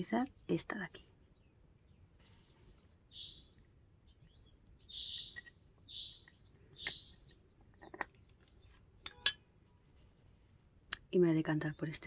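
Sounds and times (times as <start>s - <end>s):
faint bird chirps: 0.0s - 9.4s.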